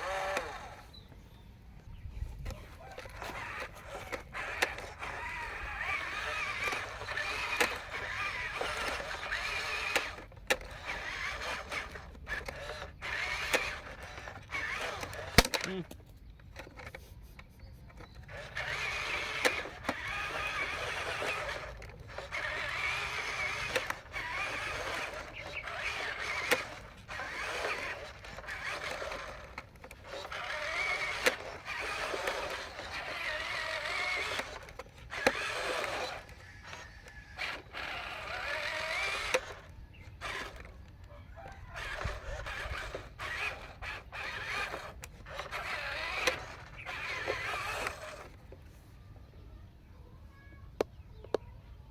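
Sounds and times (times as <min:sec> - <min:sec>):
small electric motors whining: 0:00.0 - 0:49.4
plastic parts clicking and knocking: 0:02.4 - 0:48.7.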